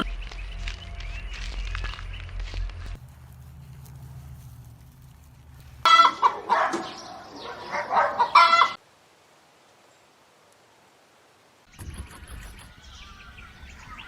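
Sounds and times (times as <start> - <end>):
rooster crowing: 5.8 - 8.8.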